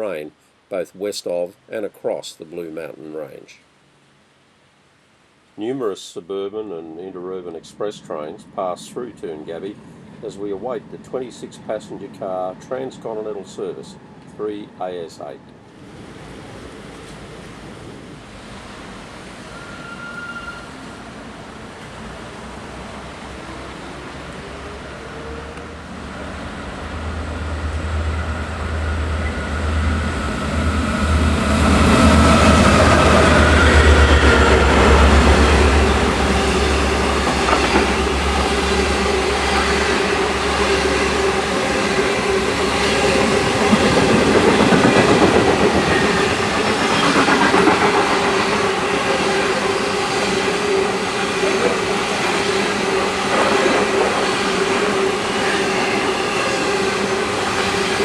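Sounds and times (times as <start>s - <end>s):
locomotive engine drone: 21.4s - 58.0s
train wheels clattering: 31.6s - 50.6s, 51.2s - 54.9s.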